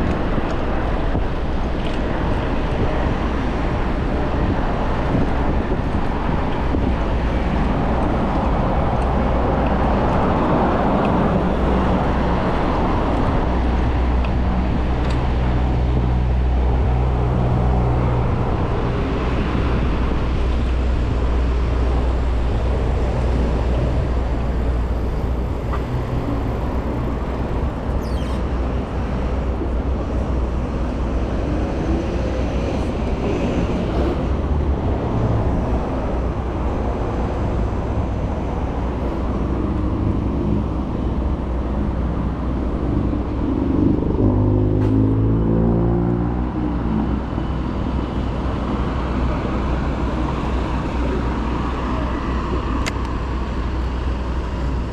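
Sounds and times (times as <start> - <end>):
road traffic rumble: 0.0 - 54.9.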